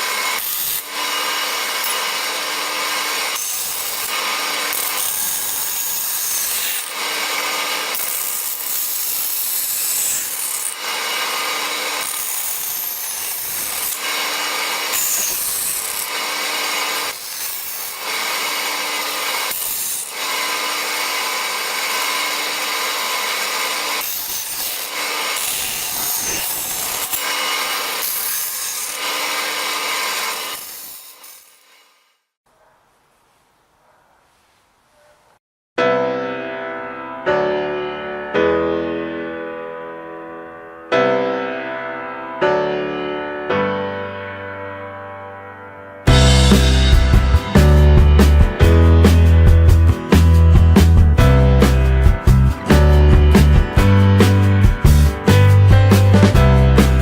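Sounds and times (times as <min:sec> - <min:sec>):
hand file scraping: 0:00.0 - 0:32.0
power tool drilling metal: 0:00.0 - 0:32.2, 0:46.1 - 0:49.3.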